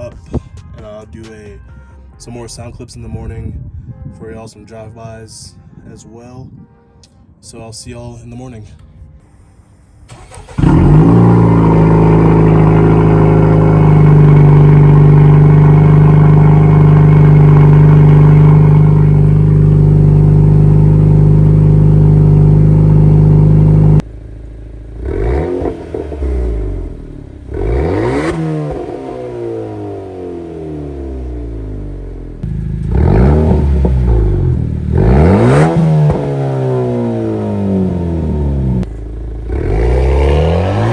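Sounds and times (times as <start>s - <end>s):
car engine revving: 10.1s - 40.9s
loud car exhaust running: 10.1s - 40.9s.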